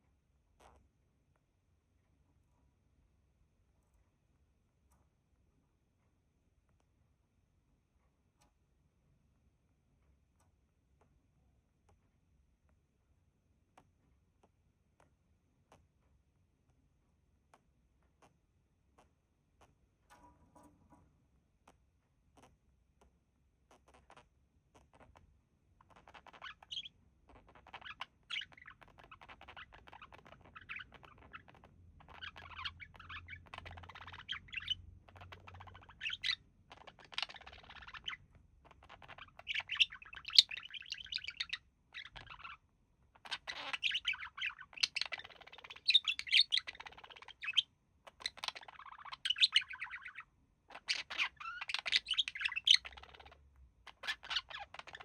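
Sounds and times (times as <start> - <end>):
budgerigars chattering: 26.0 - 42.6, 43.2 - 55.0.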